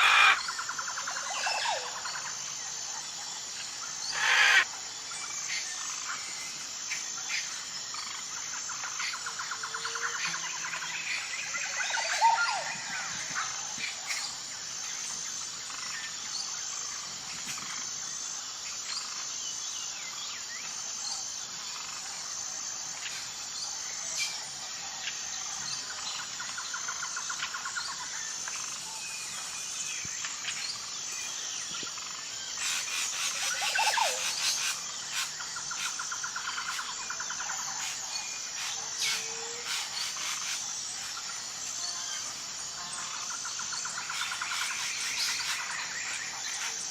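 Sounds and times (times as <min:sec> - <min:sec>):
birds calling and chirping: 0:00.0 - 0:17.8, 0:22.9 - 0:46.9
pulsing insect drone: 0:00.0 - 0:46.9
rapid bird trilling: 0:04.1 - 0:04.7.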